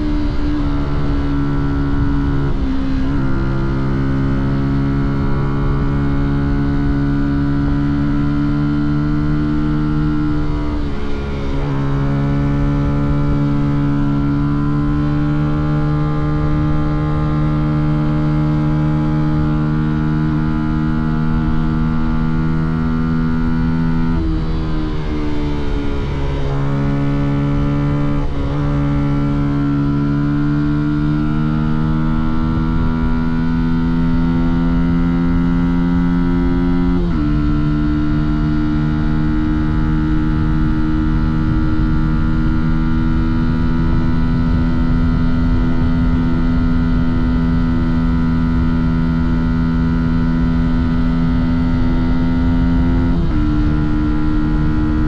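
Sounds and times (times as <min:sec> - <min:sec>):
motorcycle engine revving: 0:00.0 - 0:55.0
wind and road noise: 0:00.0 - 0:55.0.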